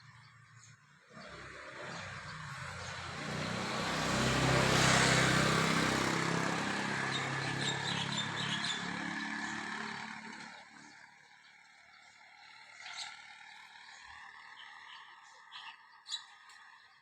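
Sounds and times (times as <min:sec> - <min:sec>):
vehicle passing by: 0:01.1 - 0:15.6
bird chirps: 0:07.0 - 0:09.7, 0:10.4 - 0:17.0.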